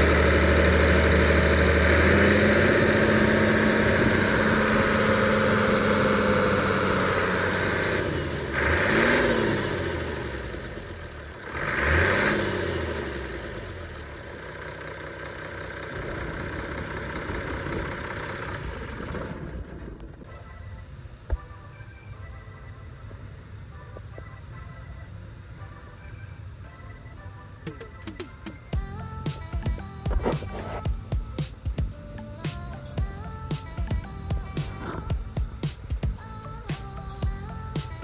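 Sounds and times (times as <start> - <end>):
truck diesel engine revving: 0.0 - 19.5, 27.6 - 38.0.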